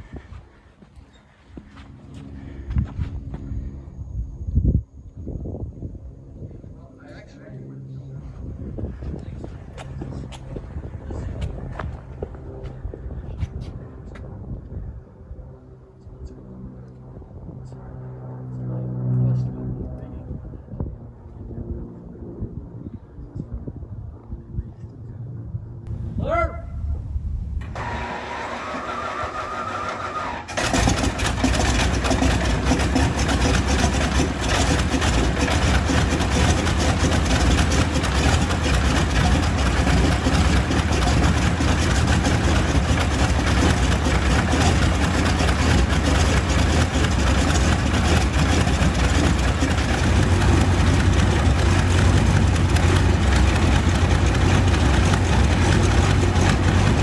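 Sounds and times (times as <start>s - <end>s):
aircraft engine idling: 0.0s - 18.5s, 26.9s - 57.0s
starter motor whine: 27.6s - 36.7s.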